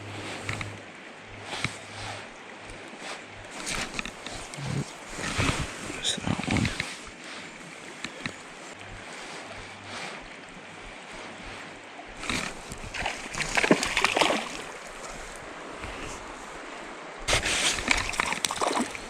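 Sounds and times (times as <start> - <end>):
creek rushing: 0.0 - 19.0
fish splashing at water surface: 12.2 - 14.9.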